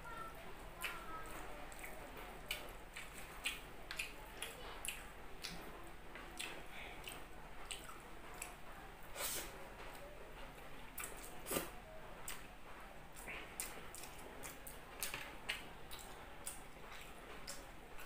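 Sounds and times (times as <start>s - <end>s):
person chewing food: 0.8s - 5.6s, 6.2s - 8.6s, 13.2s - 18.0s.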